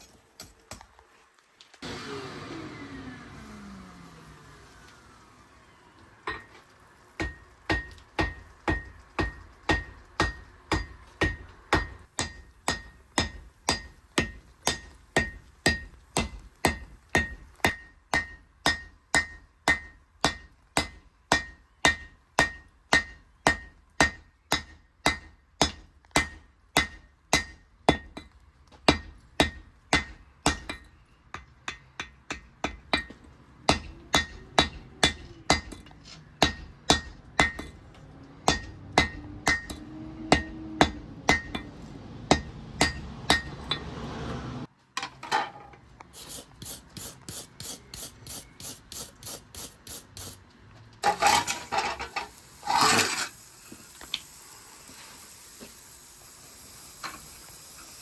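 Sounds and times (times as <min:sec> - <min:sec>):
hammer ringing on anvil: 0:07.2 - 0:16.4.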